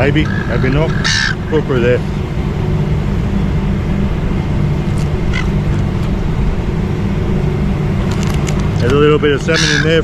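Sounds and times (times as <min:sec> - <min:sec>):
faint seagull call: 0:00.0 - 0:01.8, 0:05.2 - 0:05.8, 0:09.4 - 0:10.0
low outdoor rumble: 0:00.0 - 0:10.0.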